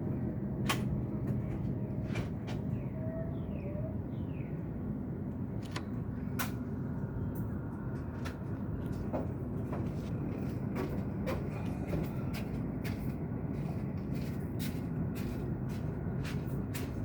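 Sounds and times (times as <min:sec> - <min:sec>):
engine ticking and clicking: 0:00.1 - 0:02.7, 0:07.3 - 0:17.0.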